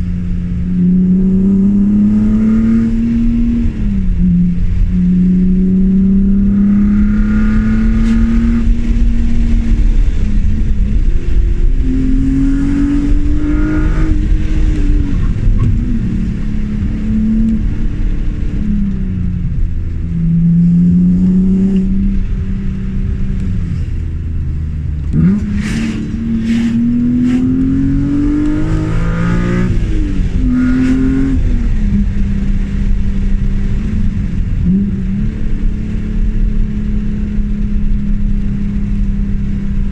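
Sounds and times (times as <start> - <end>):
car engine revving through gears: 0.0 - 39.9.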